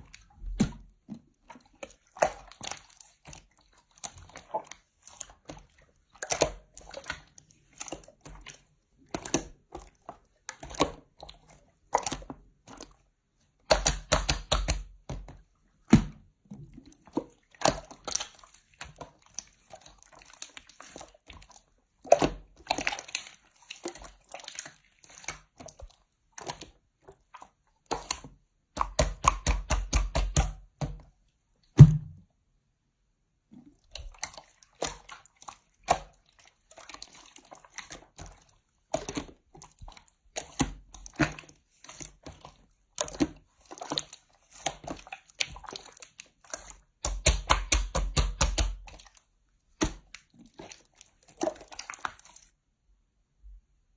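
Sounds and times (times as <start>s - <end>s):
slime squishing and popping: 13.6s - 14.9s, 17.6s - 19.0s, 28.8s - 30.6s, 44.0s - 49.2s.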